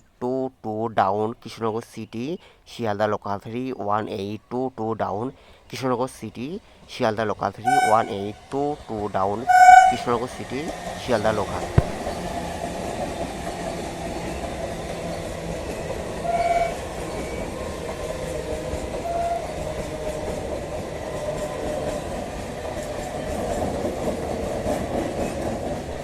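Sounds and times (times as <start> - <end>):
train wheels rumbling on rails: 6.4 - 26.0
short high tone: 7.7 - 8.2.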